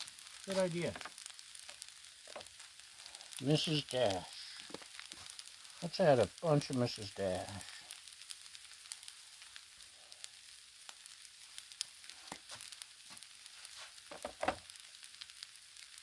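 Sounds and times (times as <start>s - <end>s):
food sizzling on a griddle: 0.0s - 16.0s.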